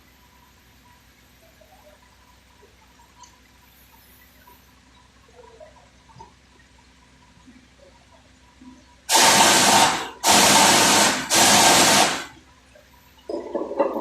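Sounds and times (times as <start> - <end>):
compressed-air tool hissing: 9.1 - 12.3.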